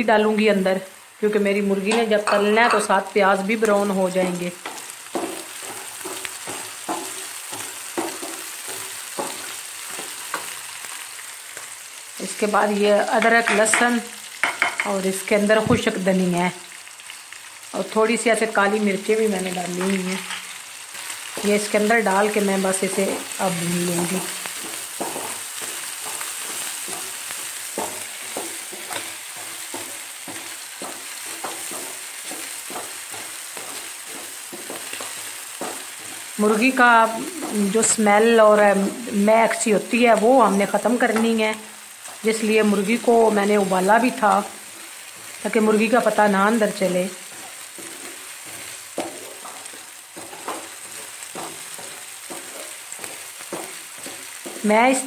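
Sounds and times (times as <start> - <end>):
food sizzling in hot oil: 0.0 - 55.0
wooden spoon scraping: 4.2 - 11.1, 19.7 - 38.0, 44.1 - 55.0.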